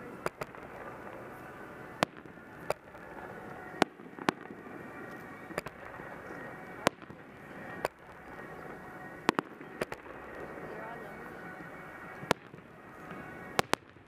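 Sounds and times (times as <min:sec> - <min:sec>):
steady background noise: 0:00.0 - 0:14.0
firework shells bursting: 0:00.1 - 0:10.8.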